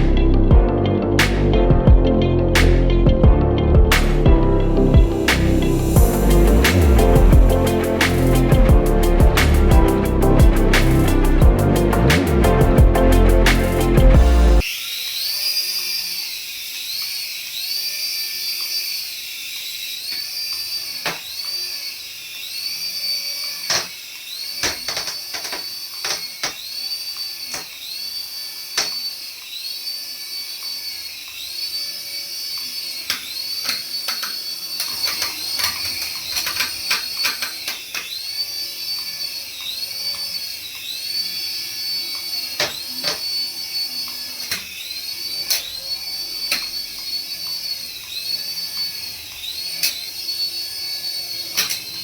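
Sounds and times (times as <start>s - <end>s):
toy electric motor whining: 13.2s - 52.0s.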